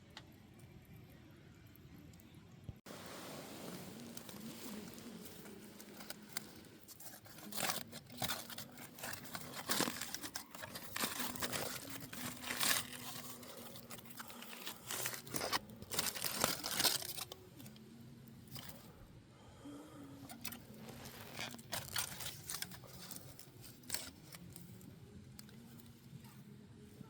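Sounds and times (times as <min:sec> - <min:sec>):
packaging crinkling and tearing: 0:03.9 - 0:17.8, 0:18.5 - 0:18.9, 0:20.3 - 0:25.6.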